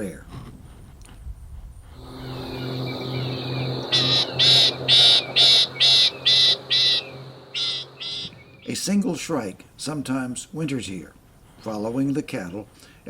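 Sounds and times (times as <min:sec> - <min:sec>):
steady low hum: 0:01.8 - 0:08.8
thin high tone: 0:02.0 - 0:08.4
shrike rasping calls: 0:02.0 - 0:08.8.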